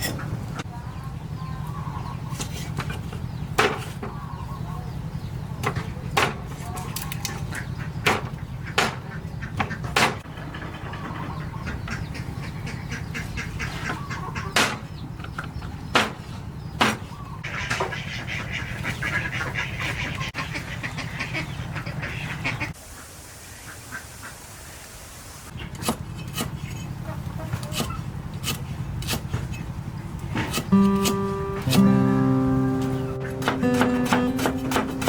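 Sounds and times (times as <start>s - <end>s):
sharp knocks: 8.0s - 10.3s, 32.8s - 35.0s
fowl calling: 30.7s - 35.0s.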